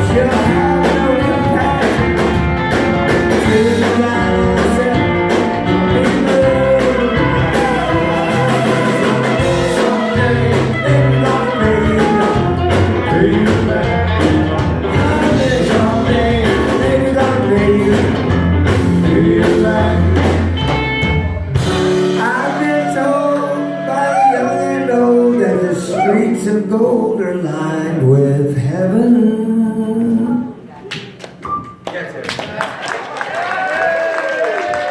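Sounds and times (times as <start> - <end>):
man singing: 0.0 - 20.7, 21.7 - 30.6
live rock band playing: 0.0 - 26.4.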